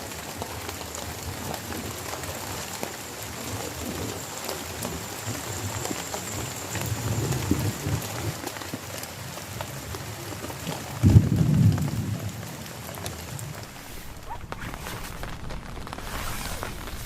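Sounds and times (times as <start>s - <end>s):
heavy rain falling: 0.0s - 17.0s
thunder clap: 11.0s - 12.5s, 13.1s - 17.0s.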